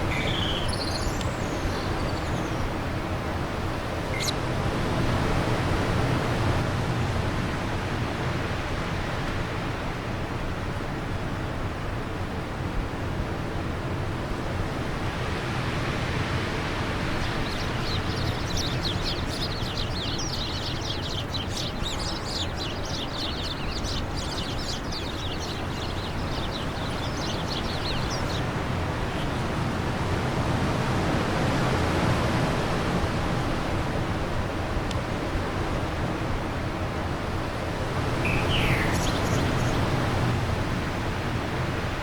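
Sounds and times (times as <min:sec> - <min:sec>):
small bird twittering: 0:00.0 - 0:03.1, 0:04.0 - 0:04.4, 0:17.0 - 0:29.6, 0:38.0 - 0:40.1
wind blowing: 0:00.0 - 0:06.6, 0:15.1 - 0:42.0.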